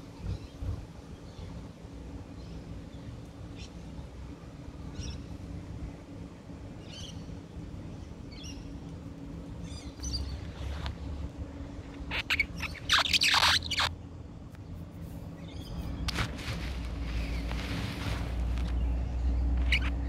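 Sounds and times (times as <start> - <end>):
steady low hum: 0.0 - 20.0
small bird chirps: 9.6 - 10.8, 12.0 - 13.9, 18.6 - 20.0.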